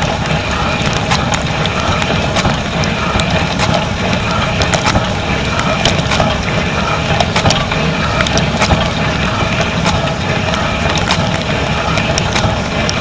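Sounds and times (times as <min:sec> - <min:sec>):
low pump hum: 0:00.0 - 0:13.0
water spraying: 0:00.0 - 0:13.0
sharp clicks and taps: 0:00.8 - 0:06.5, 0:07.2 - 0:09.0, 0:10.9 - 0:13.0.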